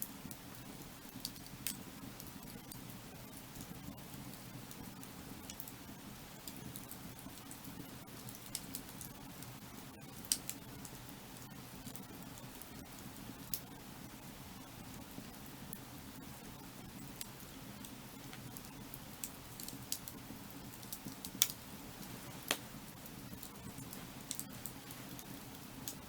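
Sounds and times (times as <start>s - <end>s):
firewood crackling and popping: 0.0s - 26.0s.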